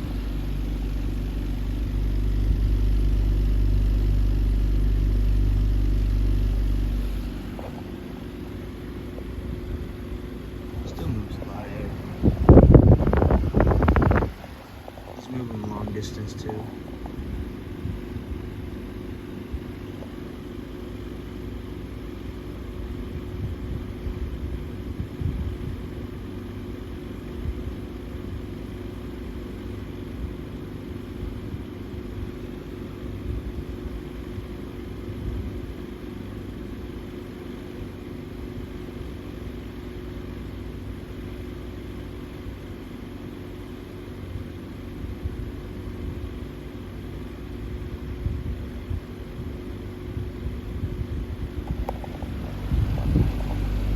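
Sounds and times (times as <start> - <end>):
airflow buffeting microphone: 0.0 - 20.3, 22.7 - 26.2, 47.6 - 53.9
fan motor hum: 0.0 - 53.9.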